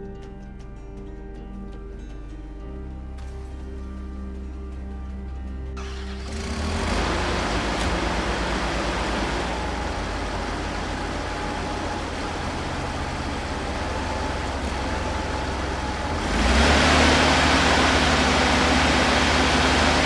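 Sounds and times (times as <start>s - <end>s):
heavy machine engine running: 5.8s - 20.0s.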